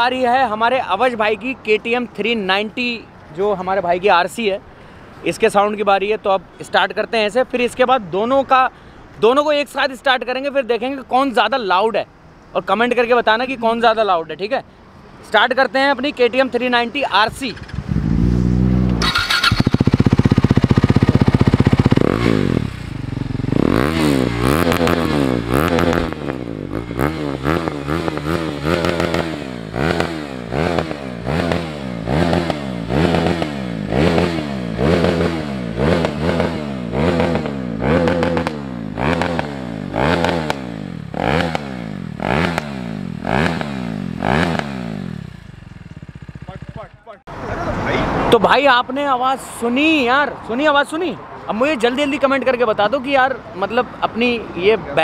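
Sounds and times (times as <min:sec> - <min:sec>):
motorcycle engine starting: 0:17.5 - 0:47.0
motorcycle engine revving: 0:17.5 - 0:47.7.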